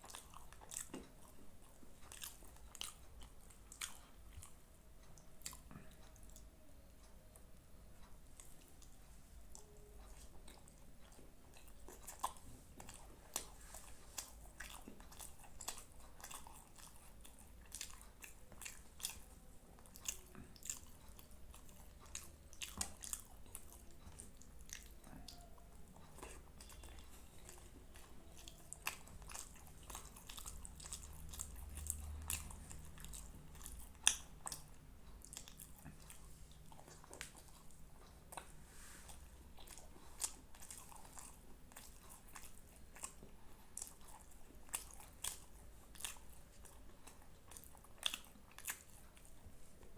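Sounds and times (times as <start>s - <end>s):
person chewing food: 0.0s - 49.9s.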